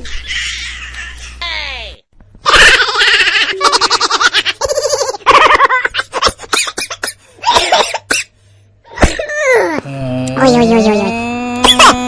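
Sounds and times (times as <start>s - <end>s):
person giggling: 10.0s - 12.0s.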